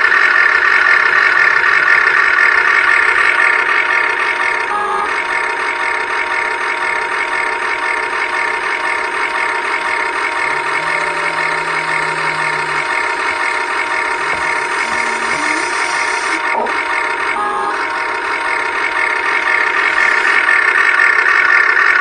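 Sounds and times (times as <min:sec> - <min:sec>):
electric motors and gearboxes whining: 0:01.5 - 0:21.8.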